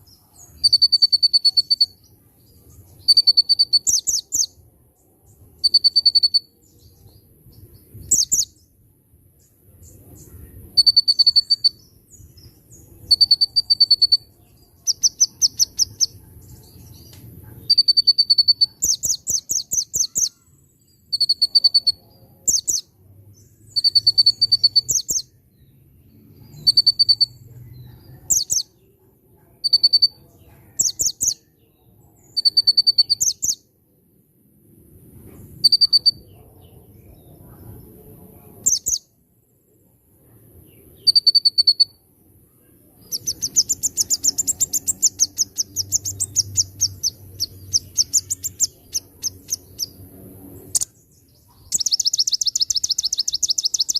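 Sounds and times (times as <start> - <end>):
songbird singing: 0.0 - 53.9.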